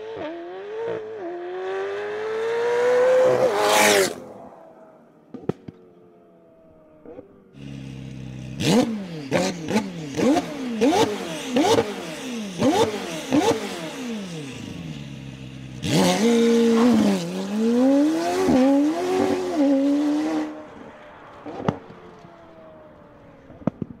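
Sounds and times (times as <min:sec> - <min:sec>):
sports car engine revving: 0:07.0 - 0:20.8
exhaust cracks and pops: 0:23.5 - 0:24.0.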